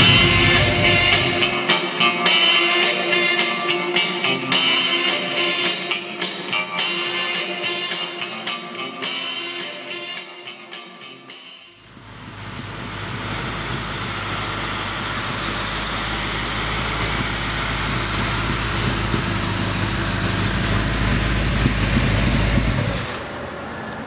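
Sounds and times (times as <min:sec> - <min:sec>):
car engine idling: 0:00.0 - 0:01.6, 0:11.8 - 0:24.0.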